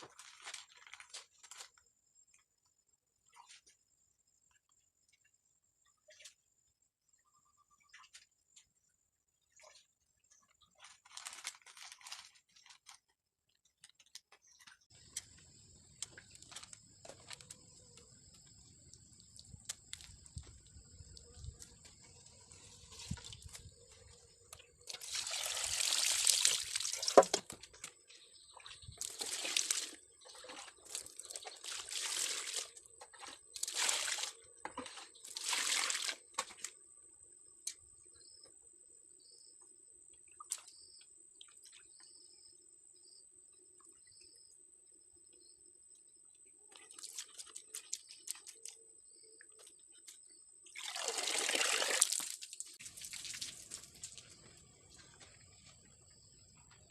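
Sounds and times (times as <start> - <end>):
water pouring and splashing: 0.0 - 1.7, 22.5 - 24.2, 24.8 - 36.8, 46.7 - 48.8, 50.7 - 55.4.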